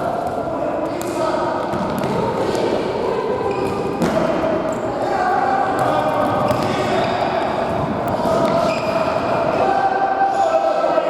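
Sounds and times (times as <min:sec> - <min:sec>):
players shouting in hall: 0:04.0 - 0:11.0
ball kicked and bouncing: 0:05.8 - 0:06.8.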